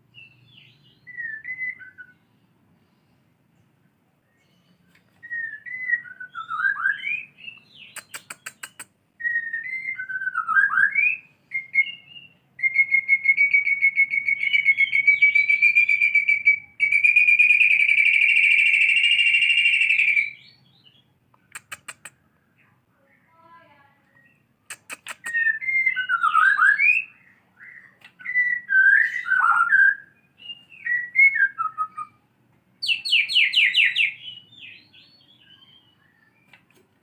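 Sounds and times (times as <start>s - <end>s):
bird whistled song: 0.1s - 2.4s, 4.2s - 22.0s, 24.0s - 32.2s, 32.8s - 36.8s
bird trilling: 5.2s - 20.6s, 24.2s - 32.2s, 32.8s - 36.6s.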